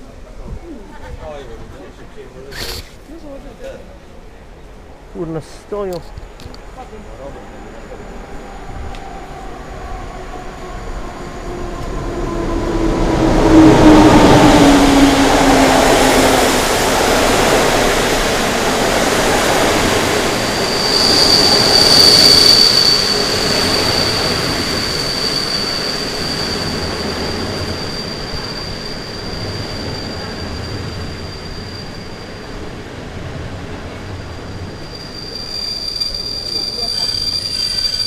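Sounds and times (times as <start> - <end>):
high brake squeal: 2.5 - 3.0, 20.2 - 32.9, 34.1 - 38.0
train rumbling: 3.4 - 38.0.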